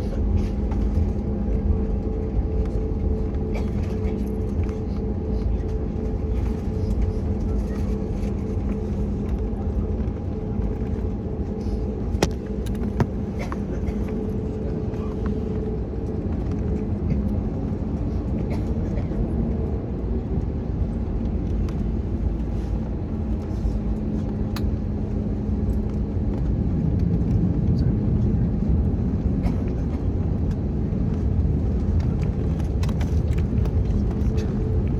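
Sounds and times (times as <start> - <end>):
steady cabin hum: 0.0 - 18.6
aircraft engines idling rumble: 0.0 - 34.9.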